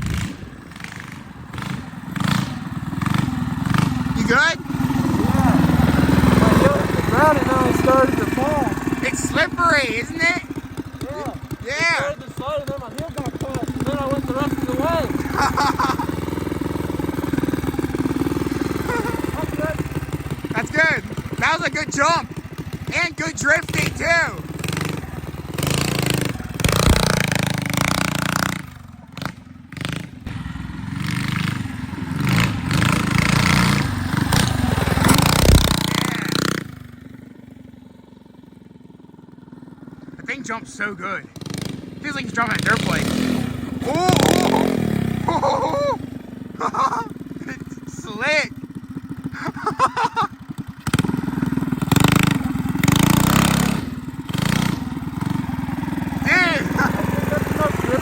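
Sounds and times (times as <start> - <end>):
mini bike engine revving: 0.0 - 58.0
low thuds: 35.1 - 36.0.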